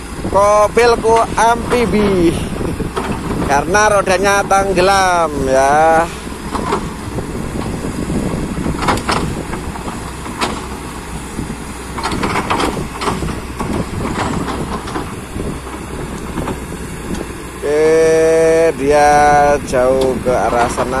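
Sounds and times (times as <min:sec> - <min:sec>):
excavator diesel engine running: 0:00.0 - 0:21.0
metallic clanks and knocks: 0:06.4 - 0:07.0, 0:08.6 - 0:11.0, 0:11.9 - 0:17.3.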